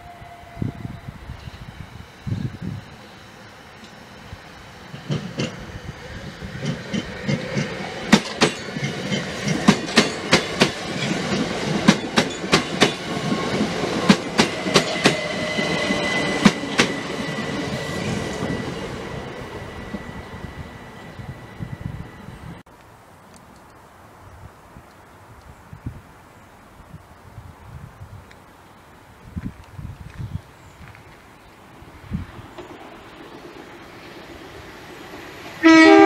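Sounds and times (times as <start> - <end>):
train rumble: 0.0 - 22.7, 31.1 - 36.0
wheels clacking over rail joints: 6.6 - 18.7.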